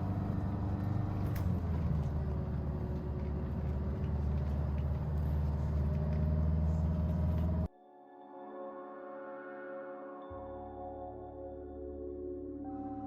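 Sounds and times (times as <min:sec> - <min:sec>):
bus engine and road noise: 0:00.0 - 0:07.7.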